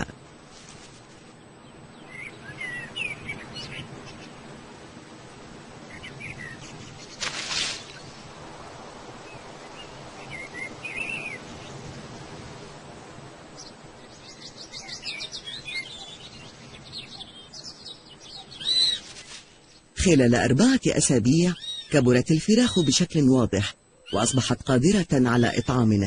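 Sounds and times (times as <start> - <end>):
rustle: 0.0 - 22.0
birds chirping: 0.0 - 26.0
high arched bird calls: 1.4 - 4.5, 5.8 - 8.2, 8.8 - 12.4, 13.5 - 20.0, 21.2 - 23.2, 23.9 - 26.0.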